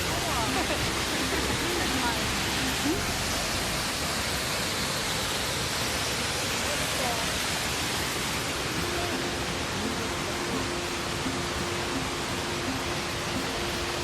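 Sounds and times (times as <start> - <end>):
faint voices: 0.0 - 4.1, 8.6 - 14.0
waterfall roaring: 0.0 - 14.0.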